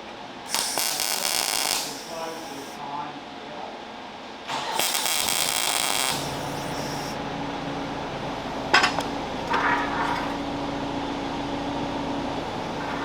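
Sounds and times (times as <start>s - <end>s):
steady hum: 0.0s - 3.3s, 4.1s - 13.0s
welding arc crackling: 0.5s - 2.8s, 4.5s - 7.2s.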